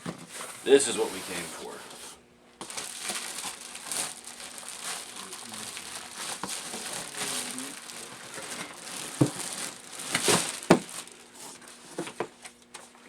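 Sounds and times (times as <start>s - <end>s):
packaging crinkling and rustling: 2.6s - 13.0s.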